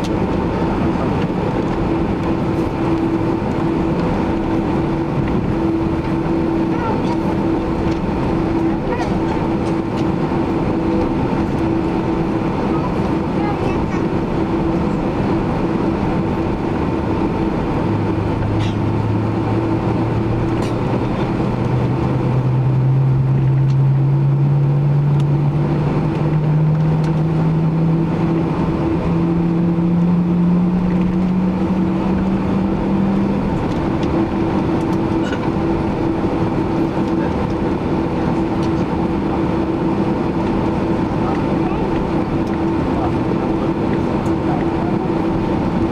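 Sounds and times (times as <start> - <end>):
airplane cabin hum: 0.0 - 45.9
low whine rising in pitch: 14.2 - 45.9.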